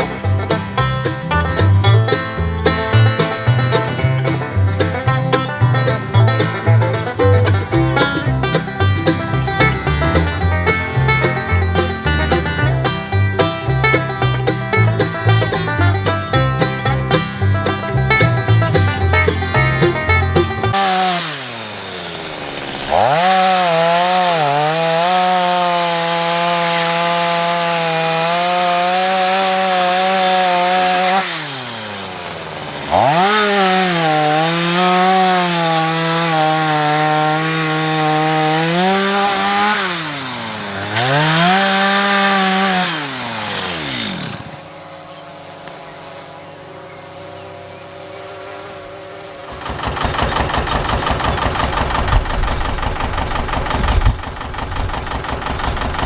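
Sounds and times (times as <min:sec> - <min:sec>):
engine chugging: 0:00.0 - 0:23.5, 0:49.5 - 0:56.0
chainsaw cutting into tree: 0:00.0 - 0:44.9, 0:48.8 - 0:56.0.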